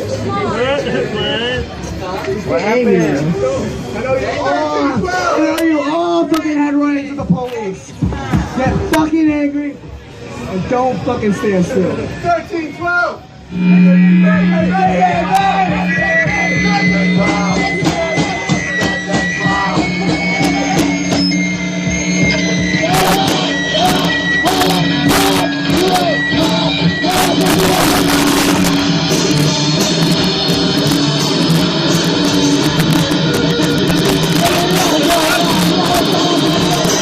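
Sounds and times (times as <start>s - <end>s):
distorted guitars: 13.4s - 37.0s
drums with cymbal and snare hits: 14.5s - 37.0s.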